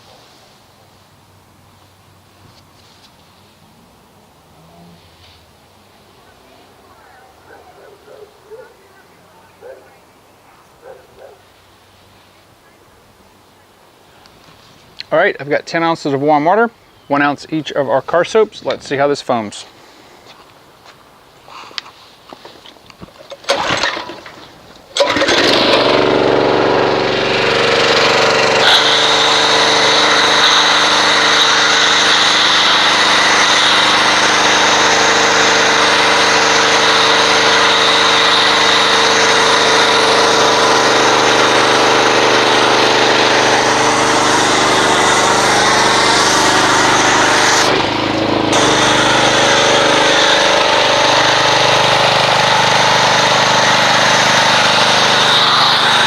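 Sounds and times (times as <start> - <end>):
pressure washer running: 23.4 - 56.0.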